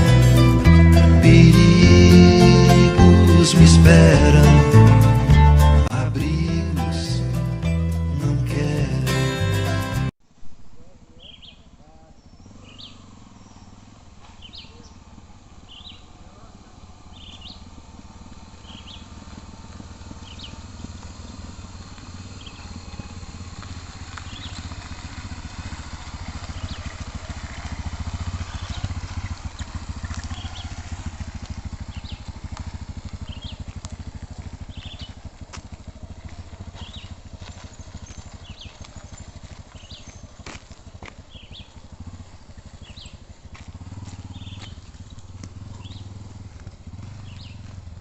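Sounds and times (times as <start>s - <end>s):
motorcycle engine rumbling: 0.0s - 48.0s
bird chirping: 10.8s - 16.3s, 17.0s - 17.8s, 18.5s - 19.2s, 20.2s - 21.2s, 22.2s - 23.0s, 24.1s - 25.1s, 26.1s - 33.8s, 34.5s - 35.2s, 36.1s - 40.6s, 41.2s - 43.3s, 44.2s - 47.8s.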